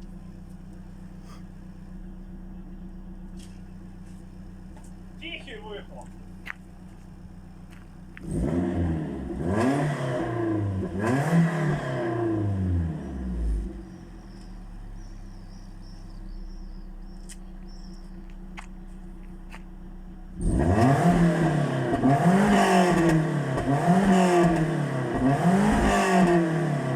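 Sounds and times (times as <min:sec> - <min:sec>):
car engine idling: 0:00.0 - 0:26.9
engine revving: 0:08.0 - 0:26.9.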